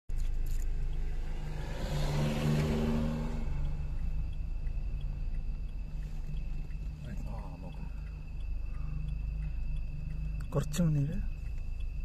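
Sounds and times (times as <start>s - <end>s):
car engine humming inside cabin: 0.1s - 12.0s.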